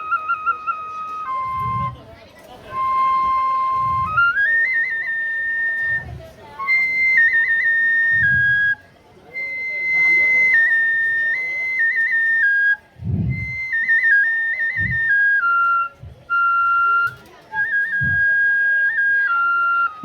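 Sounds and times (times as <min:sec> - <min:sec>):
bamboo flute melody with trills: 0:00.0 - 0:20.0
deep drum strikes: 0:13.0 - 0:13.7, 0:14.8 - 0:15.2, 0:16.0 - 0:16.4, 0:17.9 - 0:18.4.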